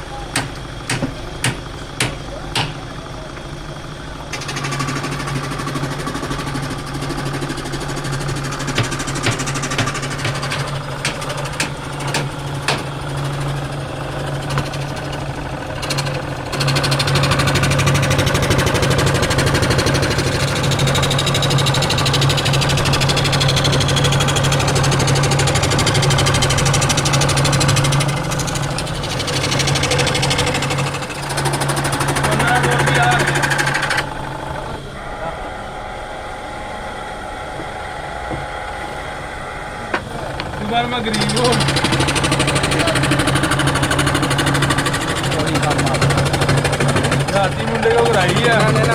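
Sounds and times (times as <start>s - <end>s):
woodworking machine humming: 0.0s - 48.9s
sharp knocks: 0.3s - 2.9s, 8.6s - 13.0s.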